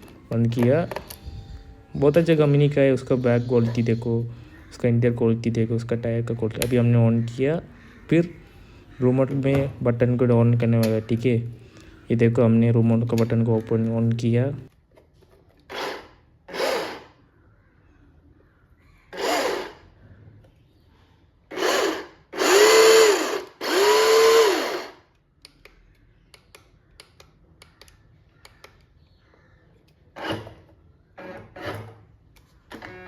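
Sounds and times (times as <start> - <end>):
toy car electric motor whirring: 15.7 - 17.1, 19.1 - 19.9, 21.5 - 25.0.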